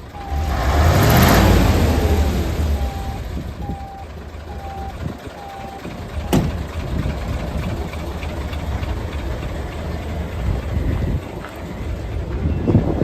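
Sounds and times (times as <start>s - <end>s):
reversing beep: 0.0s - 6.6s, 10.6s - 13.0s
diesel engine rumbling: 0.0s - 13.0s
sharp clunk: 6.3s - 6.6s.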